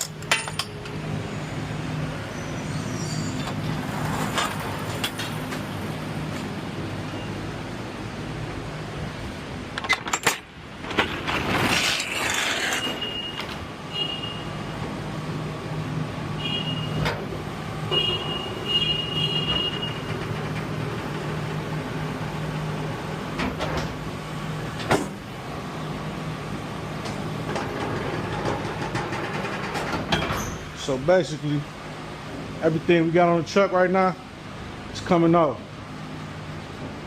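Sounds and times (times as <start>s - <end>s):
knocks and clanks: 0.0s - 1.0s, 23.3s - 24.0s, 24.8s - 25.2s, 27.0s - 30.6s.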